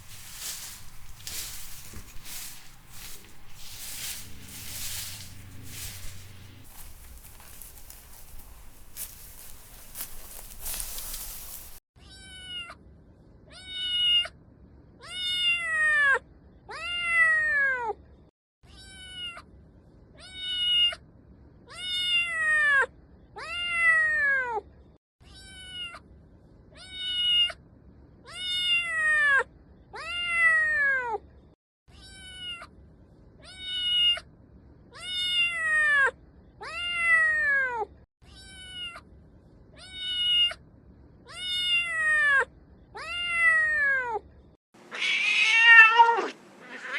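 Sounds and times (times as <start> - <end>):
cat meowing: 44.9 - 46.9.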